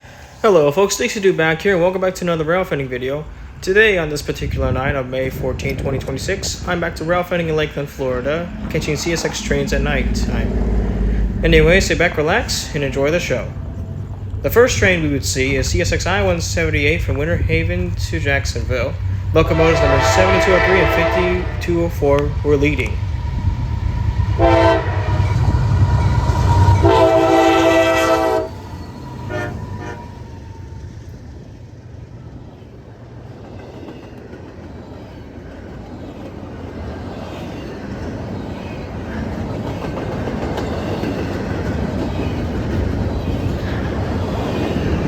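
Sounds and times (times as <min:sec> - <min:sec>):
train rumbling by: 0:00.0 - 0:45.0
train air horn blasts: 0:19.4 - 0:21.9, 0:24.4 - 0:25.8, 0:26.4 - 0:28.6, 0:29.2 - 0:30.2.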